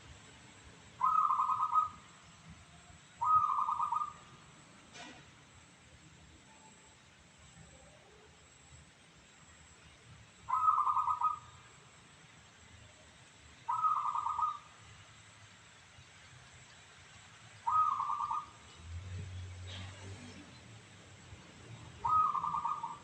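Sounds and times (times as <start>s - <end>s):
dove cooing: 1.0s - 2.0s, 3.2s - 4.2s, 10.5s - 11.5s, 13.7s - 14.7s, 17.6s - 18.6s, 22.0s - 23.0s.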